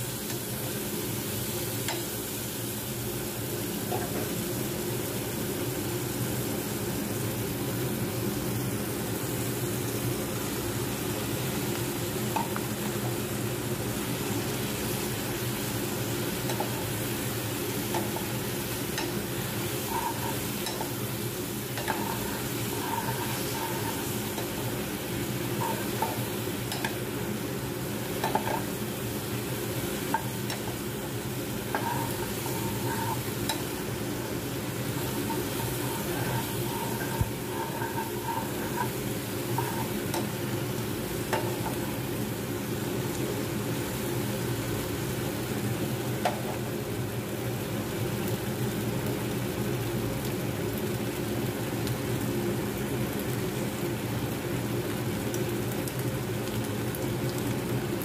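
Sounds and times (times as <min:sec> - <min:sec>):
food sizzling in a wok: 0:00.0 - 0:58.0
metal spoon stirring and scraping: 0:19.7 - 0:21.0, 0:21.7 - 0:24.7, 0:25.5 - 0:27.0, 0:28.2 - 0:28.7, 0:31.7 - 0:33.8, 0:35.0 - 0:40.4
spoon clicking against pan: 0:20.6 - 0:20.9, 0:25.6 - 0:27.0.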